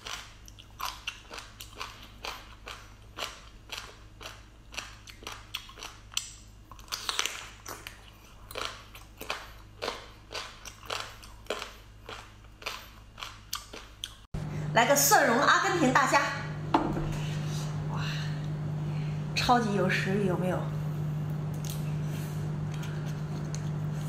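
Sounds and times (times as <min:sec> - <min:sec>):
chewing soft food: 0:00.0 - 0:14.3, 0:21.3 - 0:24.0
steady low hum: 0:07.5 - 0:24.0.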